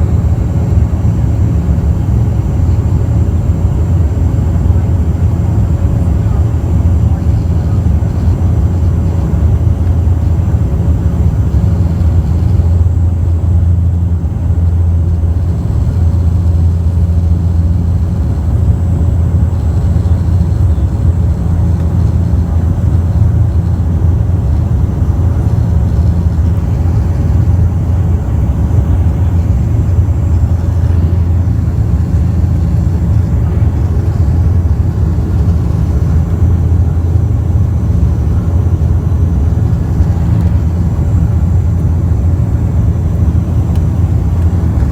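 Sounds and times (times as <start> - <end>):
turboprop engine drone in cabin: 0.0 - 44.9.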